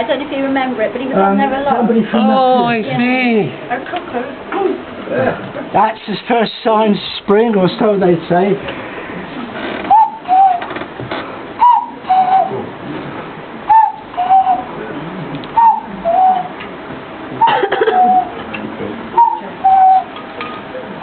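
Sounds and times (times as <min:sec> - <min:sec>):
man imitating cuckoo call: 0:09.9 - 0:10.6, 0:11.6 - 0:12.6, 0:13.7 - 0:14.7, 0:15.5 - 0:16.5, 0:17.4 - 0:18.4, 0:19.2 - 0:20.1.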